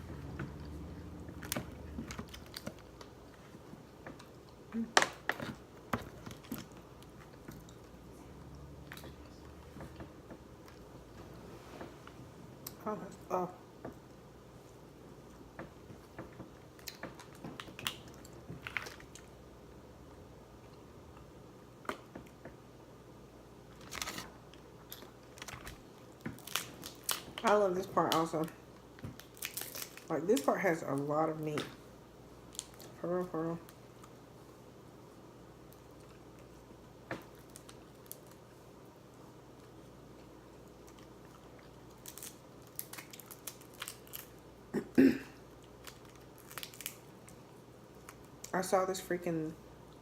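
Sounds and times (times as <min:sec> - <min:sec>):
crab shell clicking and crackling: 0:40.9 - 0:44.4, 0:45.6 - 0:47.4.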